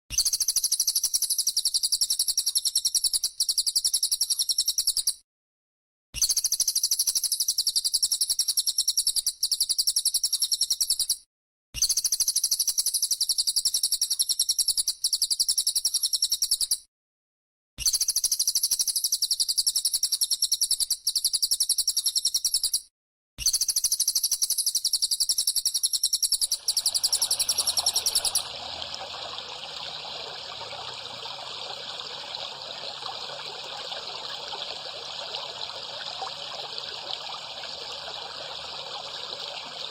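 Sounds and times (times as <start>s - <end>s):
fast rattling bird trill: 23.9s - 33.4s
trickling water: 26.4s - 39.9s.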